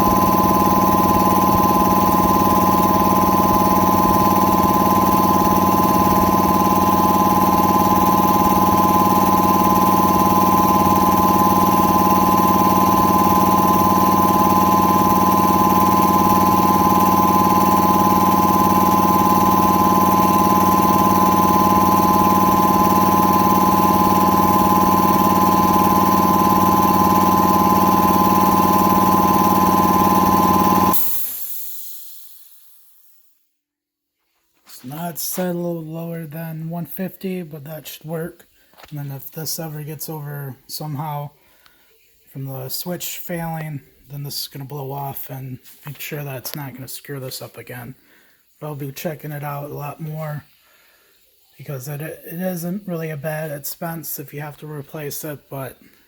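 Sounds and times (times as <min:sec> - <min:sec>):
pressure switch cutting out: 0:00.0 - 0:32.3
electric air compressor running: 0:00.0 - 0:32.9
short hiss of released air: 0:31.0 - 0:33.1.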